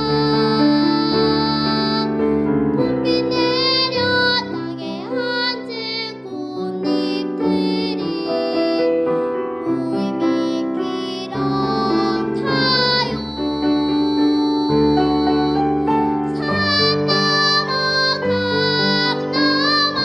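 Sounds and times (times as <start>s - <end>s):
girl singing: 0.0s - 20.0s.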